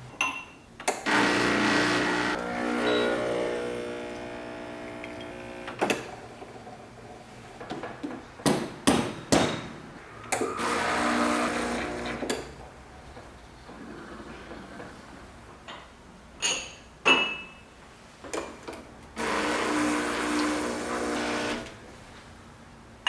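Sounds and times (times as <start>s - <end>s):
kitchen appliance motor running: 1.1s - 6.5s, 10.4s - 12.3s, 19.2s - 21.8s.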